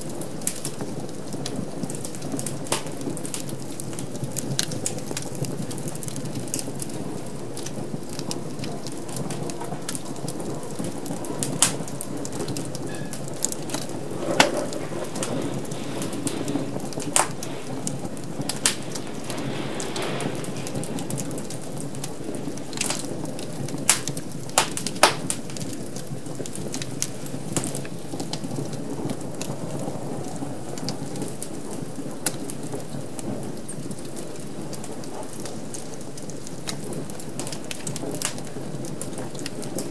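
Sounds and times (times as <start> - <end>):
fire popping and snapping: 0.0 - 39.9
wood fire crackling: 0.0 - 39.9.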